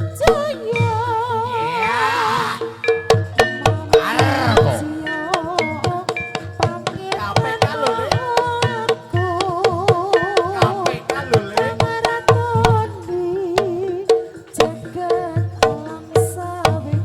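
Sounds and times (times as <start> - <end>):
wavering pitch-bending melody: 0.7 - 9.3
sharp hand-drum strokes: 2.0 - 17.0.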